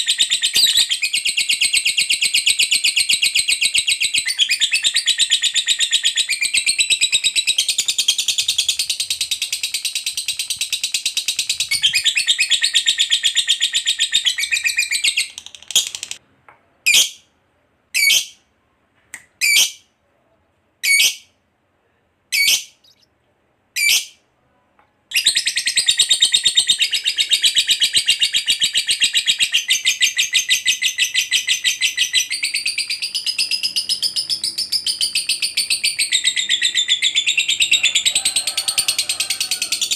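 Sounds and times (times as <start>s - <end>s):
lovebird chattering trill: 0.0s - 16.2s, 25.1s - 38.2s
lovebird single chirps: 0.1s - 2.0s.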